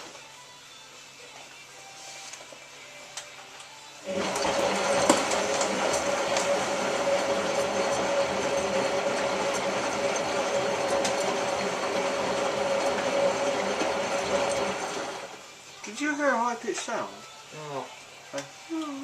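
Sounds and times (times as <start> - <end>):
washing machine drum whine: 4.0 - 15.5.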